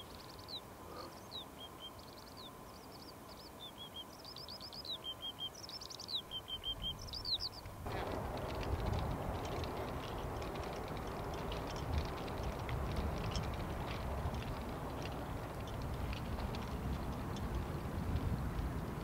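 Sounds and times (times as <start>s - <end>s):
songbird chirping and trilling: 0.0s - 7.7s
steady rushing noise: 7.8s - 19.0s.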